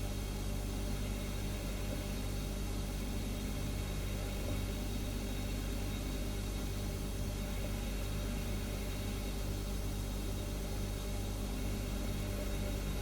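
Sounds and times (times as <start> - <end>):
refrigerator humming: 0.0 - 13.0.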